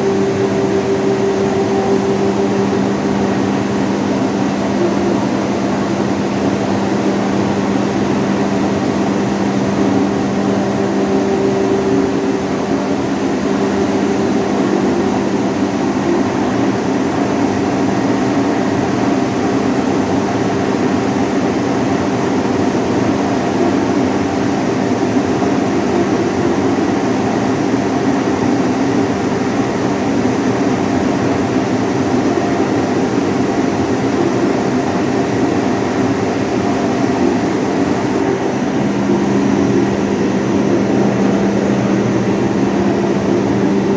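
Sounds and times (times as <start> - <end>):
hammer mill machine drone: 0.0 - 18.9, 32.7 - 43.9.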